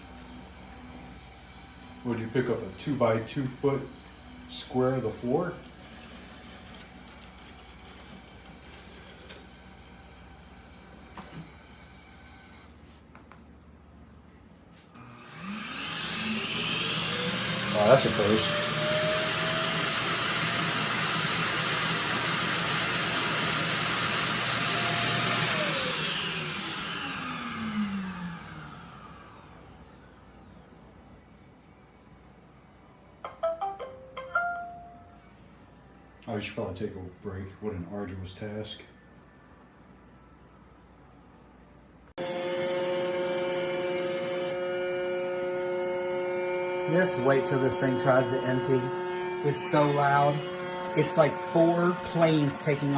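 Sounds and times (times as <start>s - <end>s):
robot vacuum whining: 15.0s - 30.0s, 42.2s - 52.9s.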